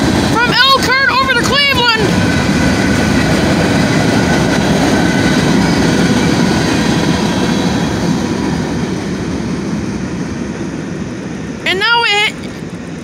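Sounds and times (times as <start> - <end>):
freight train wheels rumbling on rail: 0.0 - 13.0.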